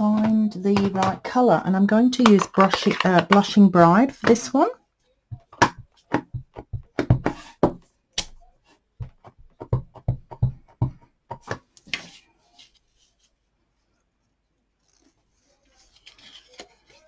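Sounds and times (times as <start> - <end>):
plastic cases clacking together: 0.0 - 1.5, 2.1 - 4.5.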